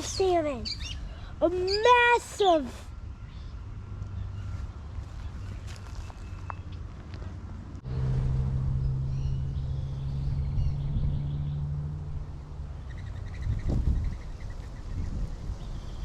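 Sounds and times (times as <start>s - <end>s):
birds chirping: 0.0s - 7.0s, 8.7s - 16.0s
low outdoor rumble: 0.0s - 16.0s
low motor hum: 7.6s - 14.2s.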